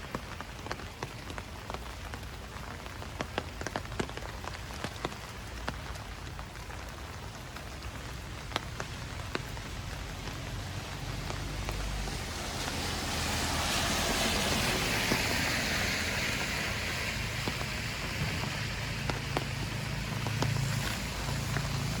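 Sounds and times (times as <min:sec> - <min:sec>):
broad wet hiss: 0:08.6 - 0:22.0
drip-like ticks: 0:13.7 - 0:22.0.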